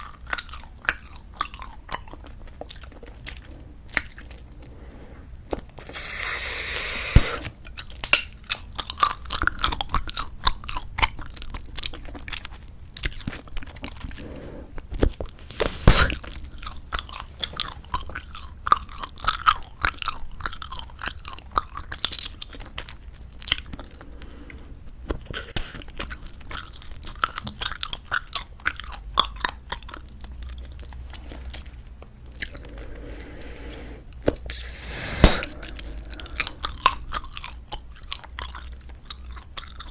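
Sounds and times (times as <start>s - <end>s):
bubblegum chewing: 15.0s - 17.5s, 20.6s - 39.9s.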